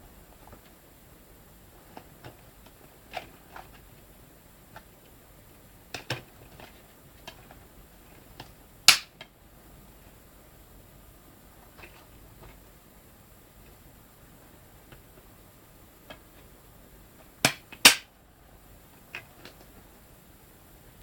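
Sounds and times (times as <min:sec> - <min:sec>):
plastic cases clicking and tapping: 0:05.9 - 0:07.6, 0:17.2 - 0:18.1.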